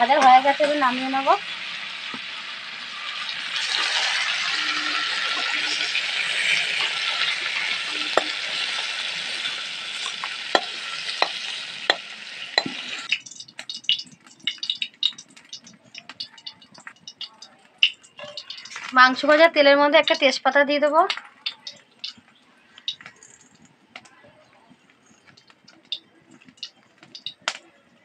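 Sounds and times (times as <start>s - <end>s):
chicken sizzling in hot oil: 0.0s - 24.1s, 25.0s - 28.0s
small crackles: 0.0s - 28.0s
spatula clinking and scraping pan: 3.0s - 20.3s.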